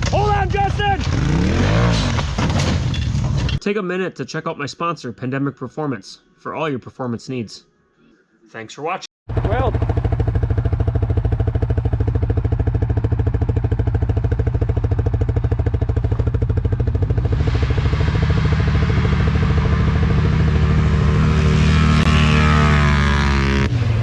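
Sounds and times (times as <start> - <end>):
atv engine idling and revving: 0.1 - 2.4, 9.3 - 24.0.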